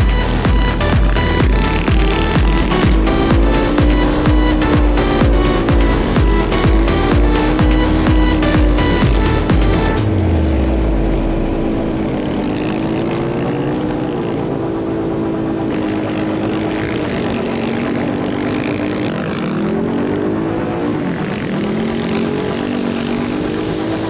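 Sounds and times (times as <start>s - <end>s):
electronic music: 0.0s - 14.2s, 20.5s - 24.0s
off-road vehicle engine revving: 0.0s - 24.0s.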